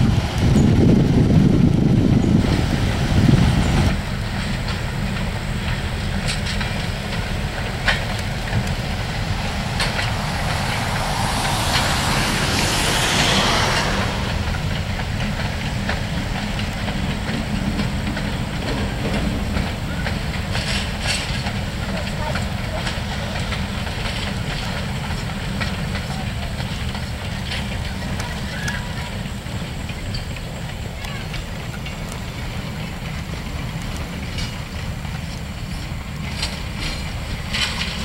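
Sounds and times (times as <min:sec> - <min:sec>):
heavy low rumble: 0:00.0 - 0:24.6
wheels clicking over rail joints: 0:00.0 - 0:38.0
hiss: 0:02.3 - 0:38.0.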